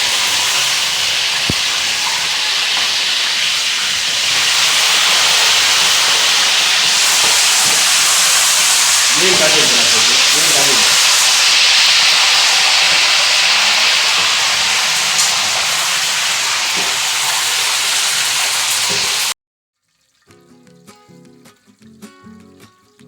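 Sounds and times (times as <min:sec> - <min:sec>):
fish sizzling in hot oil: 0:00.0 - 0:20.3
soft plucked guitar music: 0:20.2 - 0:23.0.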